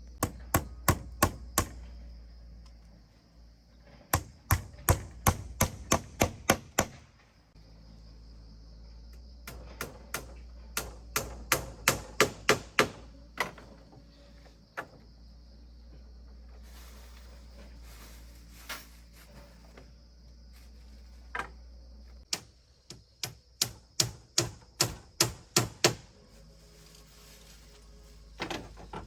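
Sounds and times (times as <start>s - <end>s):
blade chopping wood: 4.2s - 7.0s.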